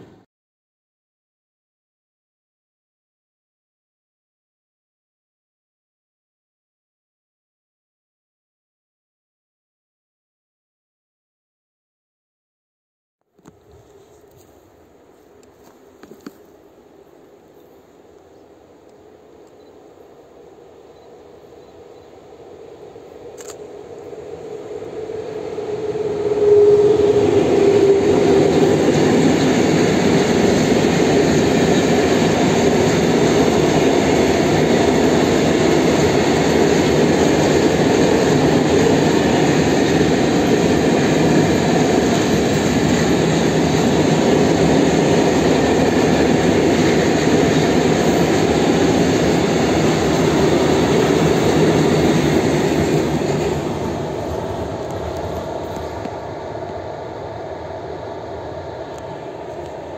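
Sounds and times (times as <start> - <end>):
locomotive steady tone: 13.3 - 59.9
train wheels on rails: 15.4 - 16.5, 20.9 - 59.9.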